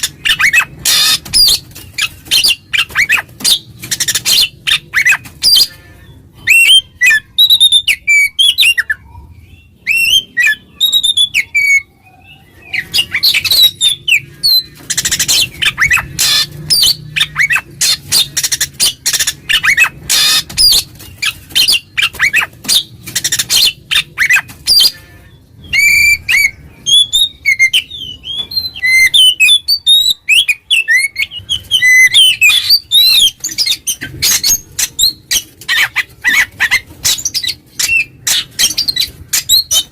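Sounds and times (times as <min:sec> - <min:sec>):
bird harsh scratchy chatter: 0:00.0 - 0:07.5, 0:12.4 - 0:25.1, 0:31.0 - 0:39.9.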